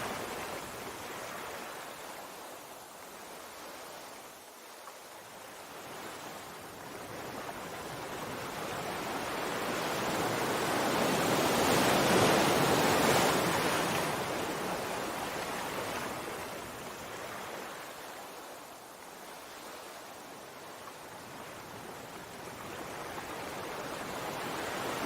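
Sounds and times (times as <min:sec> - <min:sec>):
sea surf washing: 0:05.1 - 0:25.0.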